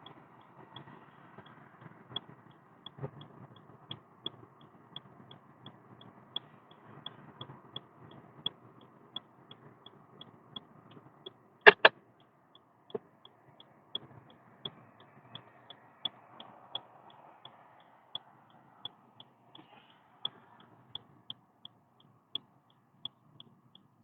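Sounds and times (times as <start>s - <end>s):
low road hum: 0.0s - 24.0s
turn signal ticking: 0.0s - 24.0s
sharp knocks: 11.7s - 11.9s.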